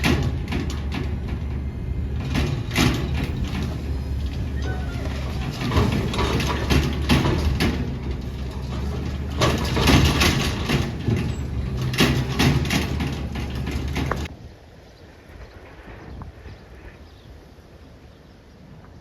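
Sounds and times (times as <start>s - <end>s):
truck engine running: 0.0s - 14.3s
debris crashing: 2.1s - 14.3s.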